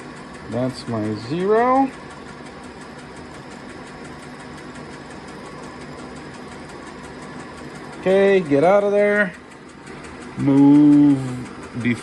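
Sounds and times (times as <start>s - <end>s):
fast faint ticking: 0.0s - 12.0s
metal lathe humming: 0.0s - 12.0s.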